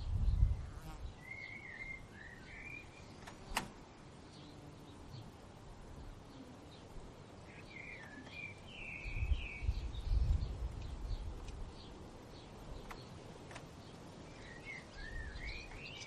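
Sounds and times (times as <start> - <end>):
faint bird chirps: 0.3 - 3.4, 6.0 - 13.2, 13.8 - 16.0.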